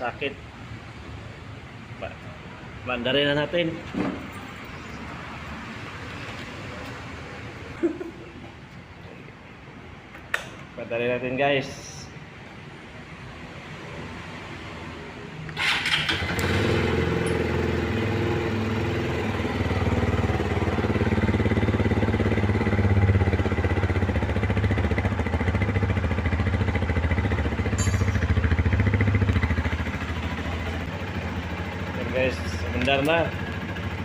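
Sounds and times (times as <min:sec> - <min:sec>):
motorcycle engine starting and idling: 0:15.5 - 0:34.0.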